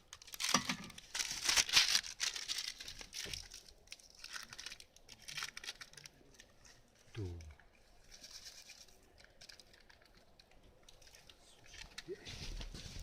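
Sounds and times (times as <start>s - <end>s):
plastic sachet tearing open: 0.1s - 6.5s
plastic sachet crinkling: 0.1s - 13.0s.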